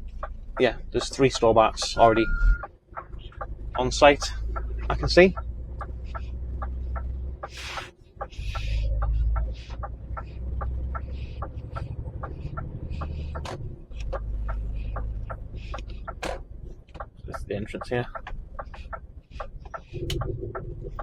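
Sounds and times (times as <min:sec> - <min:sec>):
truck diesel engine running: 0:00.0 - 0:21.0
turn indicator relay ticking: 0:00.0 - 0:21.0
short hisses: 0:07.5 - 0:07.9.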